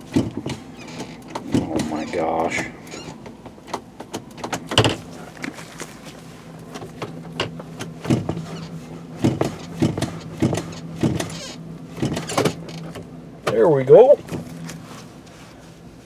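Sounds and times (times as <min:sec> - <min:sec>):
gear shifter clicks and clunks: 0:00.0 - 0:15.7
truck engine idling: 0:00.0 - 0:16.0.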